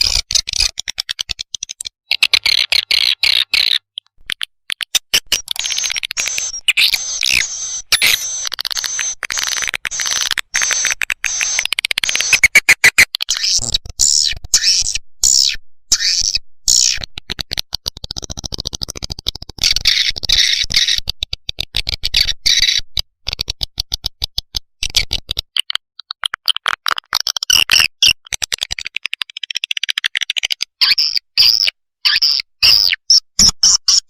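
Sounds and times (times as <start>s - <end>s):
swiftlets twittering: 5.5s - 12.8s.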